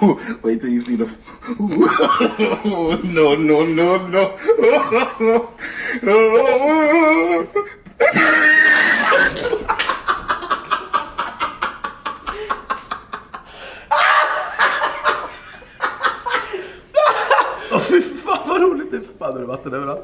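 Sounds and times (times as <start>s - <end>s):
men laughing: 0.9s - 18.7s.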